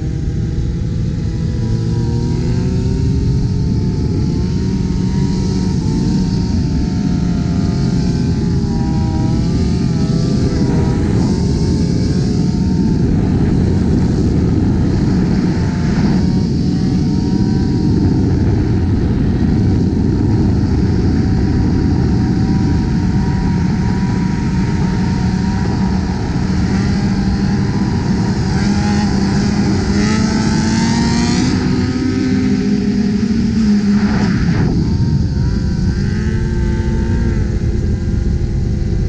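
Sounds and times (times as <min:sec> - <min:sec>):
heavy wind and road noise: 0:00.0 - 0:39.0
motorcycle engines at speed: 0:00.0 - 0:39.0.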